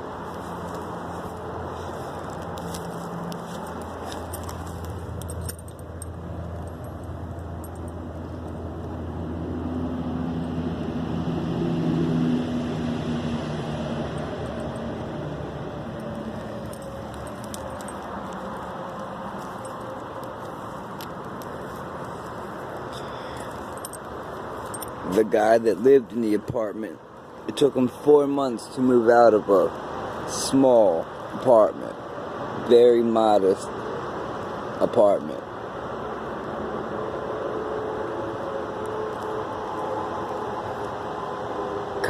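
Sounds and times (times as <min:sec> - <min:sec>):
vehicle engine passing by: 0:00.0 - 0:26.2.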